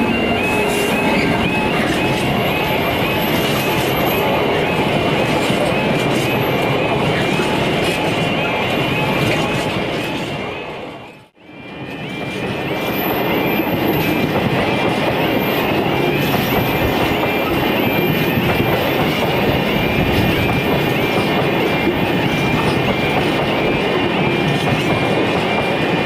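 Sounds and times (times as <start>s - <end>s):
high wheel squeal: 0.0s - 10.2s, 11.6s - 25.8s
freight train wagons rolling: 0.0s - 10.4s.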